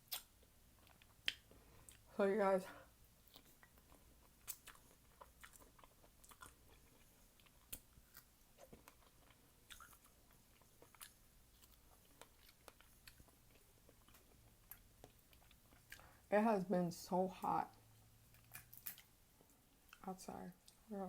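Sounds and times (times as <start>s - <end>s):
chewing fresh fruit: 0.0s - 2.1s, 3.2s - 16.3s.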